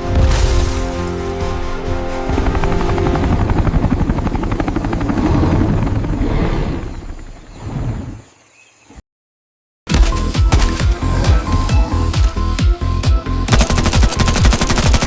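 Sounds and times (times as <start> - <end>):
rapid chopping throb: 9.9 - 15.0.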